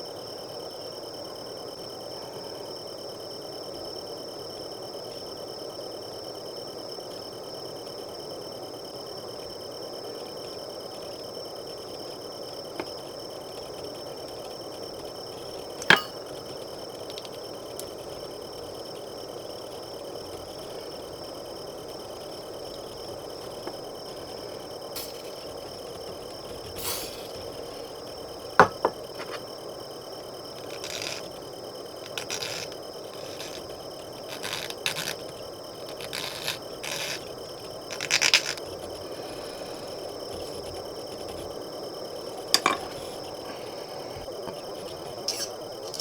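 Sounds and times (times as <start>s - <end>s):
crickets chirping: 0.0s - 46.0s
hand tools clicking on plastic: 32.0s - 39.0s.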